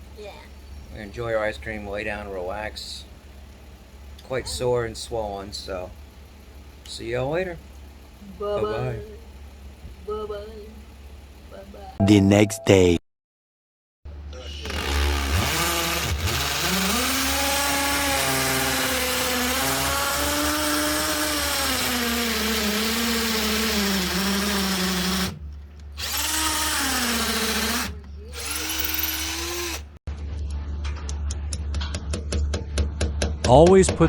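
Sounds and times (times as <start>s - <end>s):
electric drill whining: 14.5s - 25.4s, 26.0s - 30.0s.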